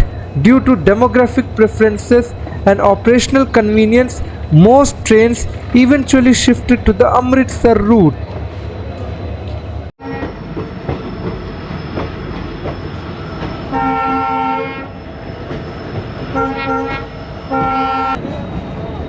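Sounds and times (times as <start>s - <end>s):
train rumbling along track: 0.0s - 19.0s
locomotive horn blasts: 13.7s - 14.9s, 16.4s - 18.2s.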